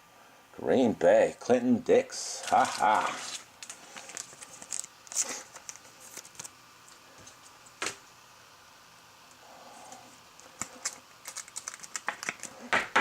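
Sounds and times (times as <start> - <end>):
card packaging rustling: 2.4 - 6.6, 10.6 - 12.7.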